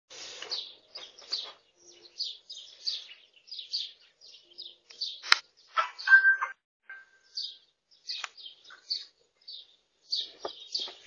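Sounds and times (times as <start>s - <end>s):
small birds chirping: 0.1s - 11.0s
sharp click: 4.9s - 5.9s.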